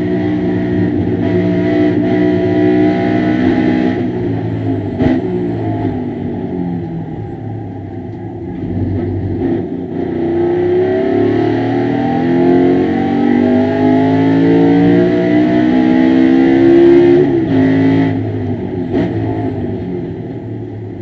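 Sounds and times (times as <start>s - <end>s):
race car engine revving at full throttle: 0.0s - 21.0s.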